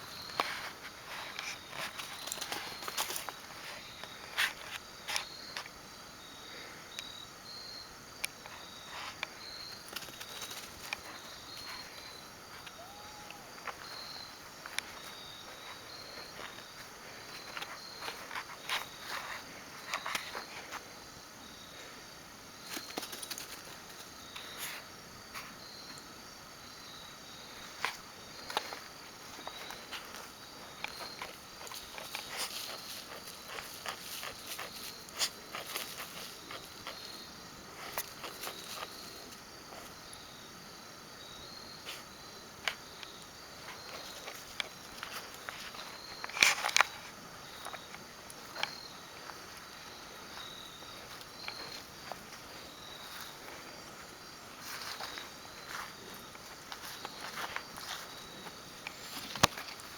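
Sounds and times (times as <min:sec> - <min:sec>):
insects chirping: 0:00.0 - 0:59.9
light clicks and rustles: 0:00.3 - 0:05.7, 0:42.6 - 0:53.6.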